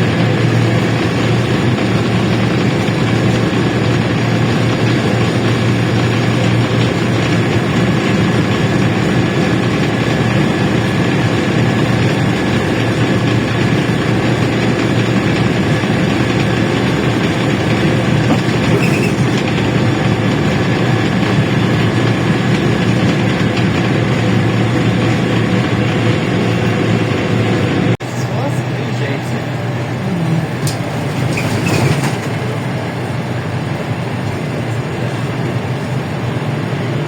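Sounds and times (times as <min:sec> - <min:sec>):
bus engine running: 0:00.0 - 0:37.0
road and body noise: 0:00.0 - 0:37.0.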